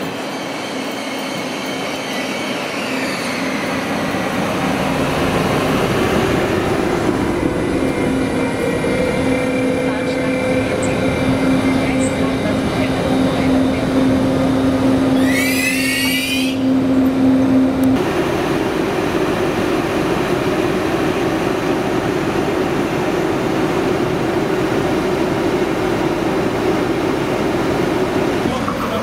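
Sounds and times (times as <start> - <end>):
steady railway hum: 0.0 - 29.0
train rumbling: 0.0 - 29.0
high squeal: 0.1 - 4.1, 15.1 - 16.8.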